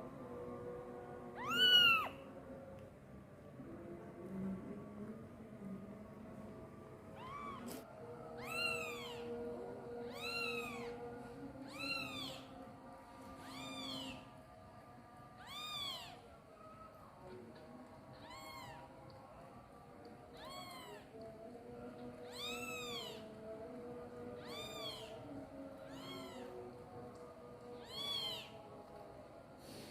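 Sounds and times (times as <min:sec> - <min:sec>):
kitten meowing: 0:01.4 - 0:02.2, 0:07.2 - 0:07.8, 0:08.4 - 0:09.3, 0:10.1 - 0:10.9, 0:11.6 - 0:12.5, 0:13.4 - 0:14.2, 0:15.4 - 0:16.2, 0:18.2 - 0:18.8, 0:20.3 - 0:21.0, 0:22.2 - 0:23.3, 0:24.4 - 0:25.2, 0:25.9 - 0:26.6, 0:27.8 - 0:28.6.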